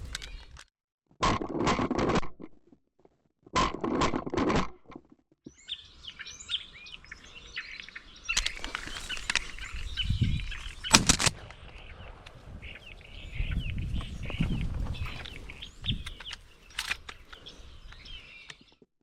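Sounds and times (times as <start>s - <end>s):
birds chattering and chirping: 5.5s - 18.8s.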